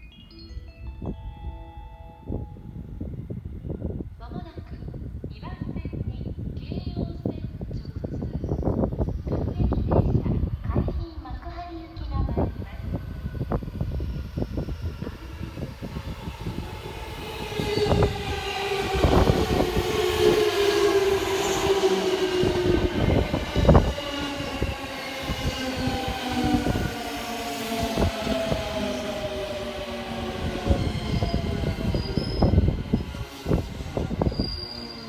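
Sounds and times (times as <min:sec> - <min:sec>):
train motor whine: 0:12.6 - 0:35.0.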